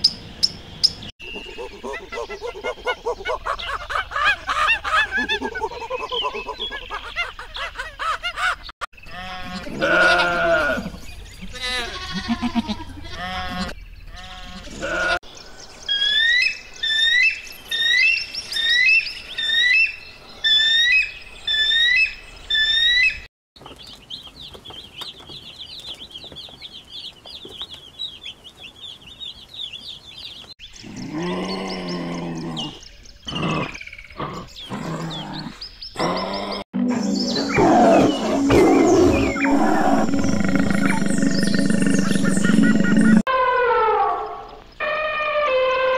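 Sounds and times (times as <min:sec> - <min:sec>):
loud chirping calls: 0:00.0 - 0:10.2, 0:13.5 - 0:43.3
mouflon bleating: 0:09.1 - 0:15.2
baby chicks peeping: 0:23.6 - 0:30.6
low-pitched animal calls: 0:30.8 - 0:45.9.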